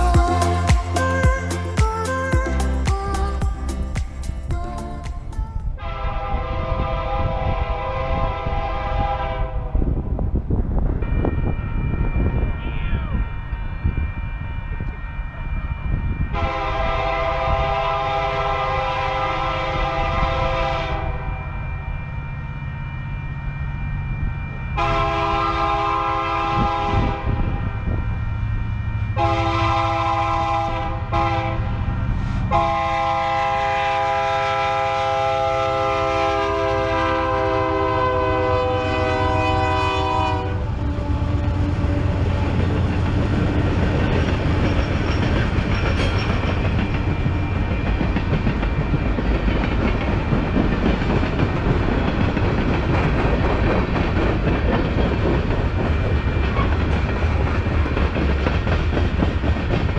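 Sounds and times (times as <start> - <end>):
train rolling past: 0.0 - 59.9
locomotive air horn: 5.6 - 9.8, 16.3 - 21.3, 24.8 - 27.6, 29.2 - 42.7.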